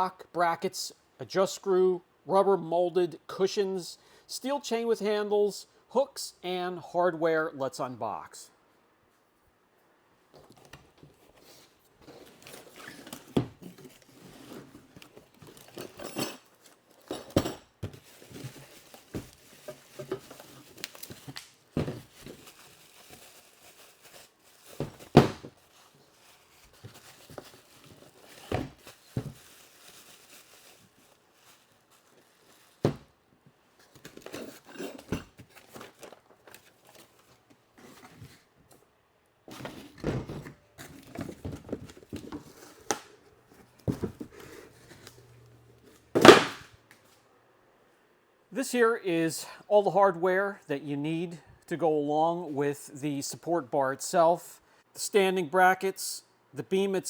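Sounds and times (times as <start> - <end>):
packaging crinkling and tearing: 18.0 - 32.9.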